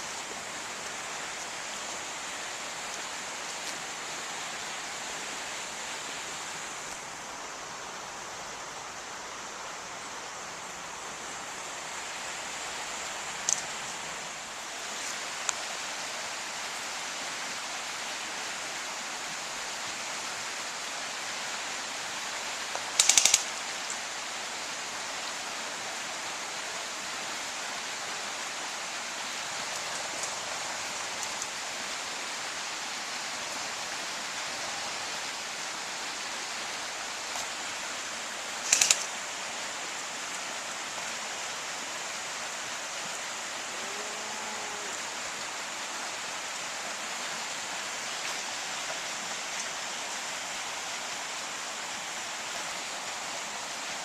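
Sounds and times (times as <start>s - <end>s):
steady hiss: 0.0s - 54.0s
airsoft gun firing bursts: 23.0s - 23.4s, 38.7s - 39.0s.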